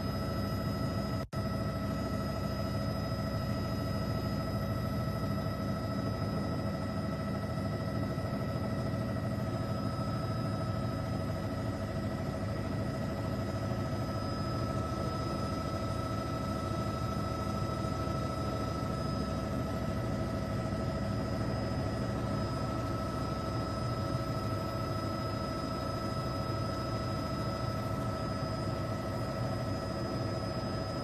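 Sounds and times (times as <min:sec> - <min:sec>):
aircraft engine drone in cabin: 0:00.0 - 0:31.0.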